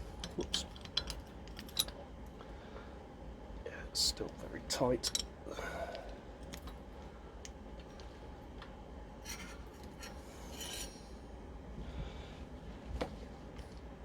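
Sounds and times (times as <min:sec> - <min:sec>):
spanner scraping on hub: 0:09.3 - 0:11.1.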